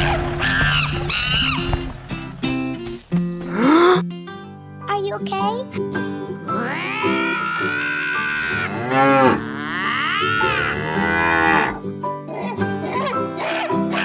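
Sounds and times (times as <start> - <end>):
background music: 0.0 - 14.0
animal-like cries: 6.5 - 14.0.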